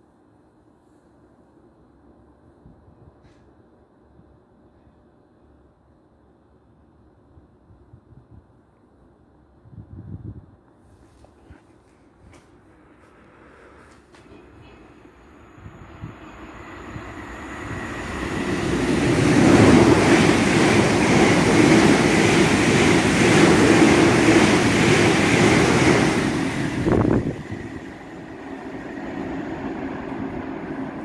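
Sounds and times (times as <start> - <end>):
train passing with rushing rumble: 12.8 - 31.0.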